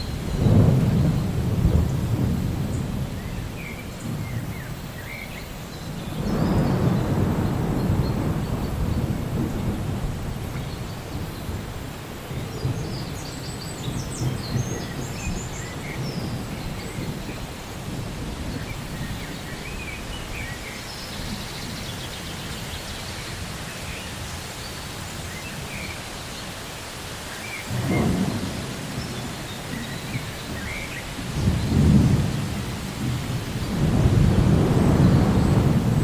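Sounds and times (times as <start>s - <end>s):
rain falling: 0.0s - 36.0s
thunder rolling: 0.1s - 4.5s, 6.1s - 11.7s, 27.7s - 36.0s.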